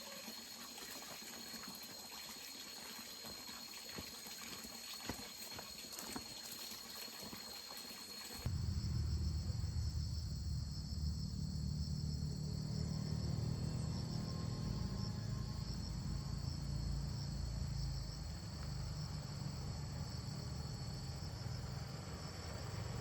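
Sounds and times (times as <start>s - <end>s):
water trickling and splashing: 0.0s - 8.6s
high insect trill: 0.0s - 23.0s
loud crickets: 0.0s - 23.0s
low hum: 8.5s - 21.8s.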